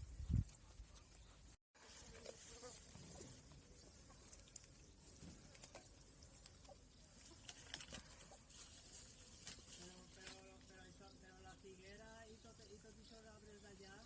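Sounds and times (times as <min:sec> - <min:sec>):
small ticks and clicks: 0:04.1 - 0:08.4.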